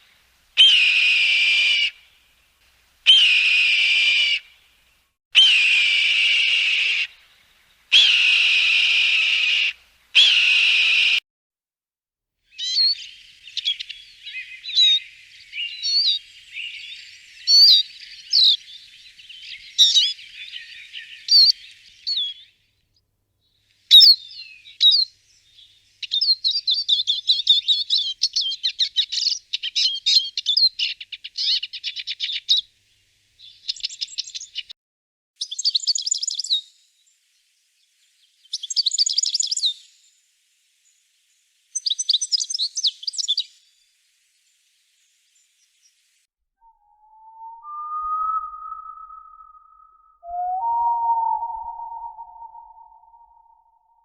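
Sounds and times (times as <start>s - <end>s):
small birds chirping: 12.5s - 22.6s, 23.9s - 34.7s, 35.4s - 40.2s, 40.8s - 46.3s.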